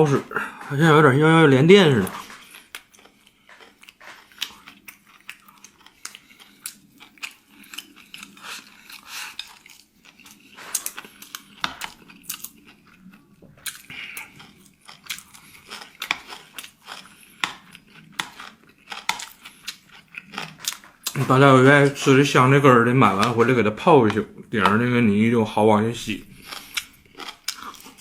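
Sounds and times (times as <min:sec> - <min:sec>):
person chewing crunchy food: 0:02.0 - 0:21.6, 0:26.2 - 0:28.0.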